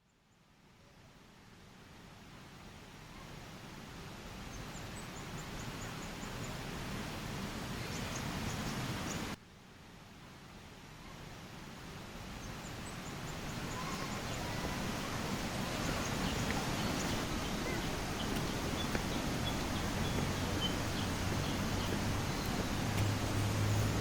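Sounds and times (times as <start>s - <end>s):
steady rushing noise: 11.9s - 24.0s
faint high bird chirps: 12.4s - 24.0s.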